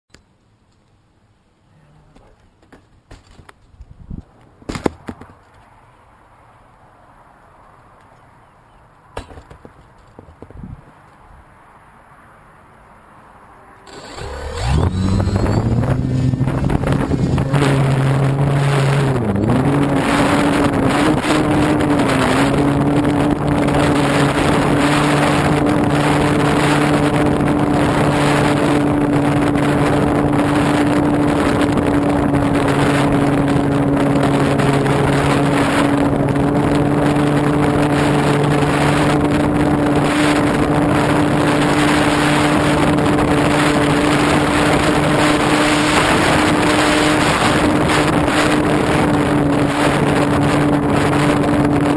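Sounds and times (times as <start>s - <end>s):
wind rushing over microphone: 3.8s - 5.4s, 9.2s - 11.9s, 13.8s - 51.9s
model airplane motor droning: 13.6s - 19.0s.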